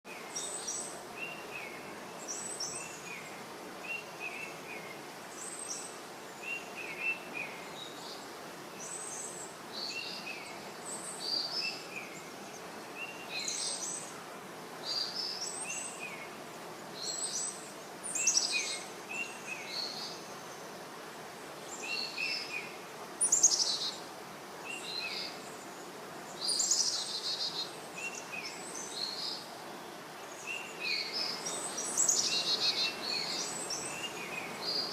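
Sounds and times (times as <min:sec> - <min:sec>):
steady background hiss: 0:00.1 - 0:34.9
birds chirping: 0:24.6 - 0:34.9.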